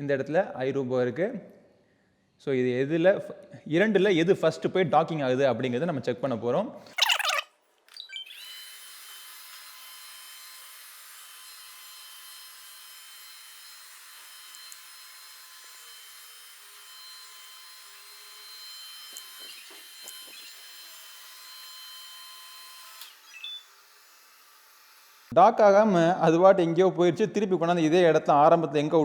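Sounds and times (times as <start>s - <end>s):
robot vacuum whirring: 7.0s - 8.0s.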